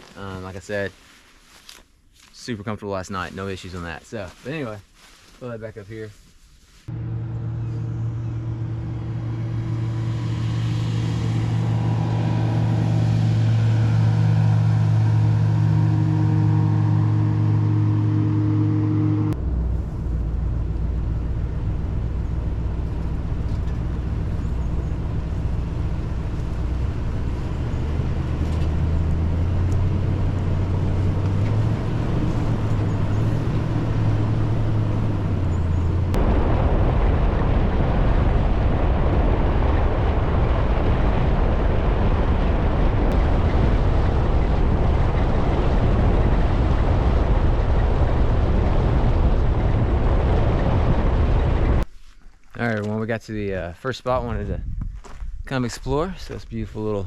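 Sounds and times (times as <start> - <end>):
vehicle engine running: 6.9 - 51.8
road noise: 6.9 - 51.9.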